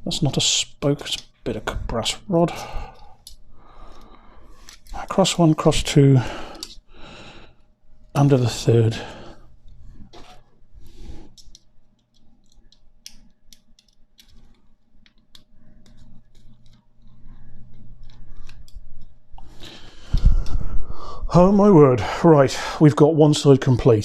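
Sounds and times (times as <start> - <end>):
bicycle spokes clicking: 11.3 - 17.2.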